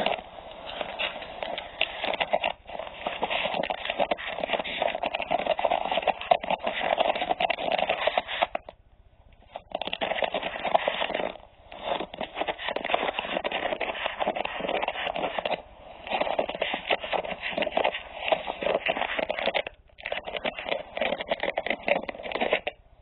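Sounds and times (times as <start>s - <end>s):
dense crackling and rustling: 0.0s - 8.8s, 9.5s - 22.8s.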